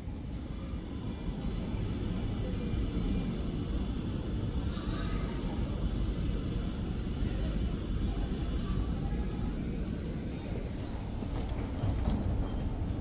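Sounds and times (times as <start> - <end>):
airliner rumble: 10.4 - 13.0.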